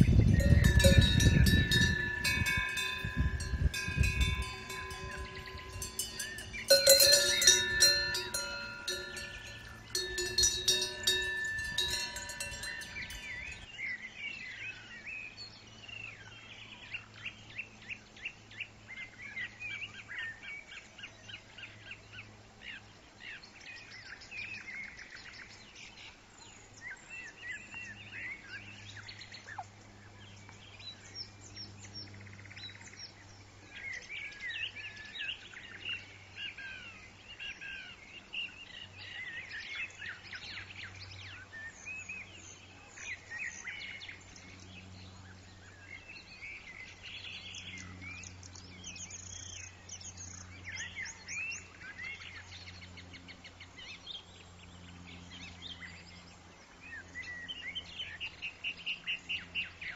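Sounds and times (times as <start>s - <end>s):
cowbells clanking: 0.0s - 13.6s
songbirds chirping: 0.0s - 15.7s.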